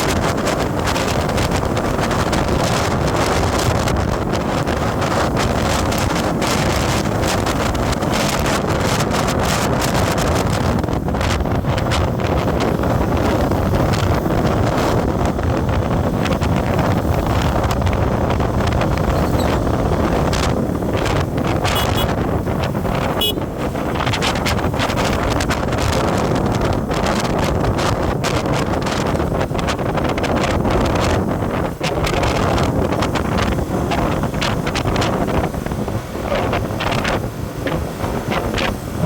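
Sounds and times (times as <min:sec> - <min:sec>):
wind rushing over microphone: 0:00.0 - 0:39.0
vehicle low rumble: 0:10.6 - 0:26.9.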